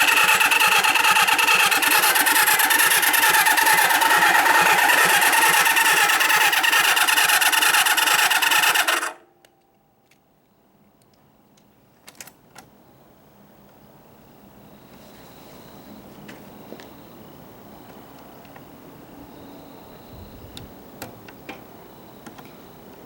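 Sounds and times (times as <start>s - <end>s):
motorcycle engine cranking: 0.0s - 9.2s.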